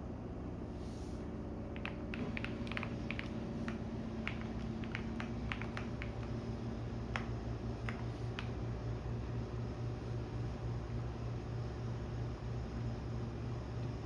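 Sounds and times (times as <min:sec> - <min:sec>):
washing machine hum: 0:00.0 - 0:14.0
typing on computer keyboard: 0:01.8 - 0:06.4.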